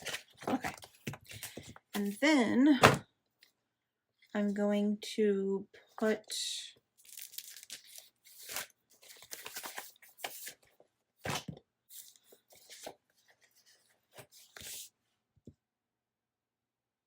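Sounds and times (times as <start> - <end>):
paper rustling and crinkling: 0.0 - 2.2, 7.0 - 14.9.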